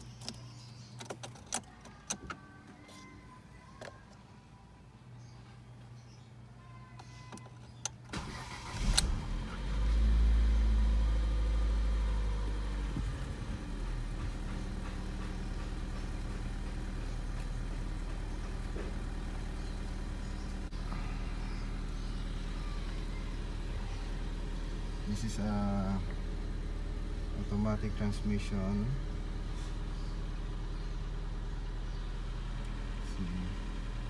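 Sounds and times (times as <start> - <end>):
ignition clicks: 0.0 - 3.1, 7.0 - 9.4
car engine starting and idling: 7.4 - 34.0
starter motor cranking: 8.1 - 9.4.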